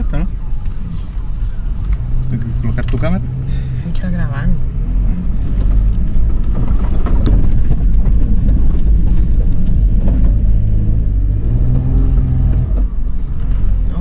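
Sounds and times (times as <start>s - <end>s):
engine rumbling under heavy throttle: 0.0s - 14.0s
scattered knocks: 5.6s - 10.6s.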